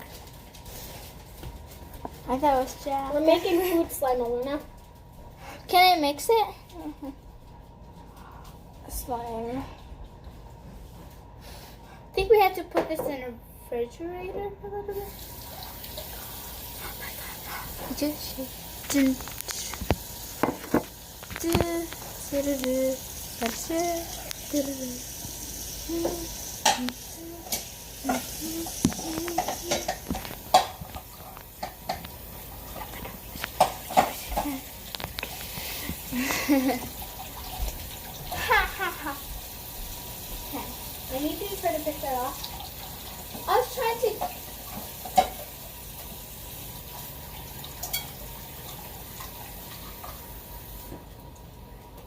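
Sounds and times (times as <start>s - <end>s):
water running from tap into sink: 14.3s - 51.5s
utensil stirring sticky slime: 21.2s - 36.1s
person humming: 21.4s - 25.1s, 25.8s - 30.0s.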